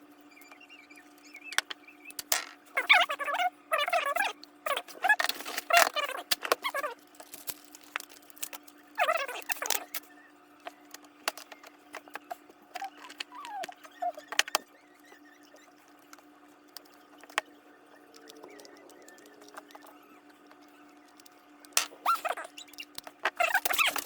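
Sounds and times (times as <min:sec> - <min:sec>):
faint steady hum: 0:00.0 - 0:24.0
laptop parts clicking and rattling: 0:05.1 - 0:10.0, 0:10.6 - 0:14.7, 0:15.5 - 0:24.0.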